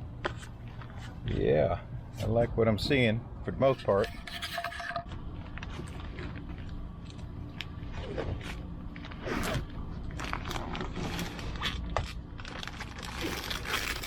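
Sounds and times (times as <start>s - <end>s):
plastic film being peeled off: 9.0s - 14.0s.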